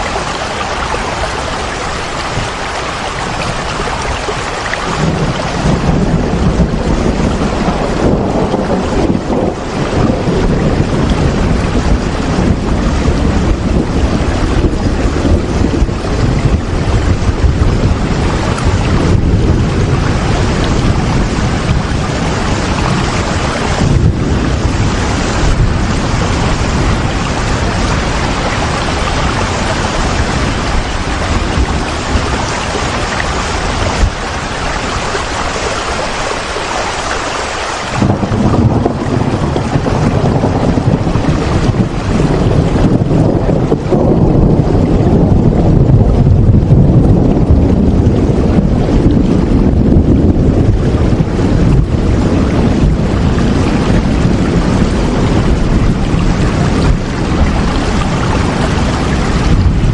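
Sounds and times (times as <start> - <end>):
loud rain: 0.0 - 59.9
deep low rumble: 38.0 - 59.9.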